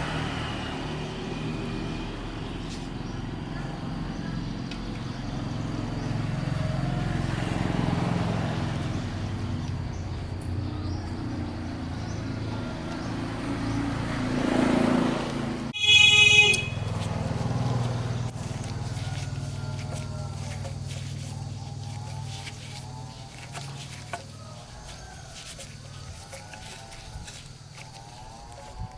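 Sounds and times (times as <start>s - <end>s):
horn toot: 15.8s - 17.4s.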